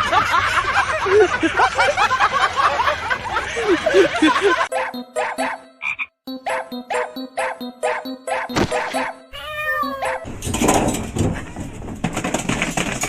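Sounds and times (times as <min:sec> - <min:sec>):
frogs croaking: 0:05.5 - 0:06.2.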